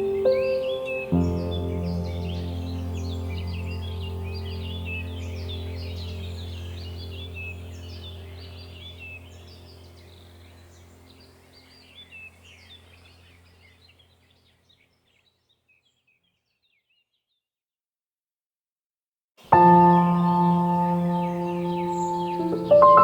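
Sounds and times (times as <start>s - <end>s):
small birds chirping: 0.0s - 17.5s, 19.4s - 23.0s
low steady drone: 1.5s - 13.5s.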